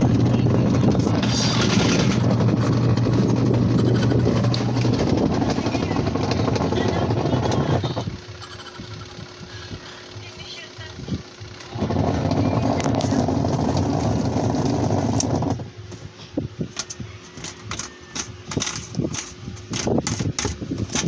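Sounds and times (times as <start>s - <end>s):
washing machine motor running: 0.0s - 21.0s
sharp clicks and knocks: 16.8s - 21.0s.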